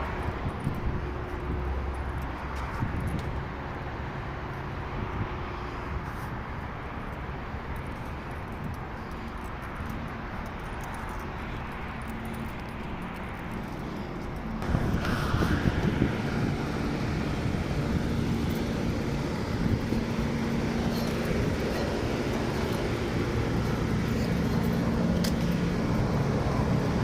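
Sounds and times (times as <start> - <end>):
air handler blower whooshing: 14.6 - 27.0.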